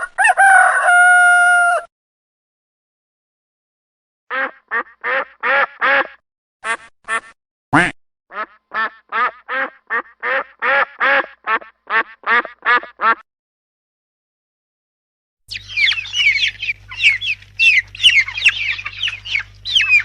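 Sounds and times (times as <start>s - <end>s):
duck quacking: 4.3s - 13.2s, 15.7s - 20.0s.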